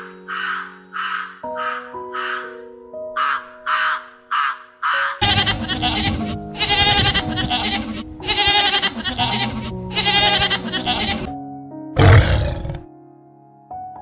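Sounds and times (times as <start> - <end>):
crow cawing: 0.0 - 5.6
soft background music: 0.0 - 14.0
wavering animal bleating: 5.2 - 11.3.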